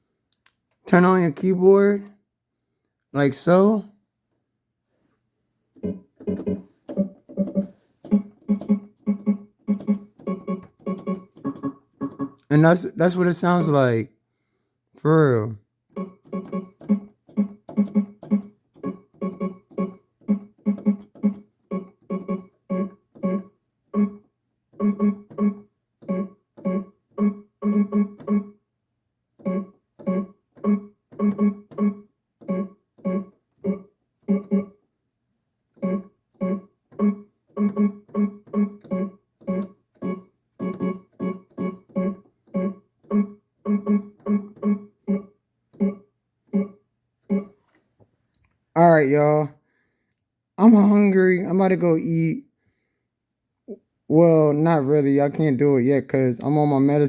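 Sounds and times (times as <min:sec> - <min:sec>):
electronic keyboard beat: 0:05.8 - 0:13.8, 0:16.0 - 0:24.2, 0:35.8 - 0:46.0.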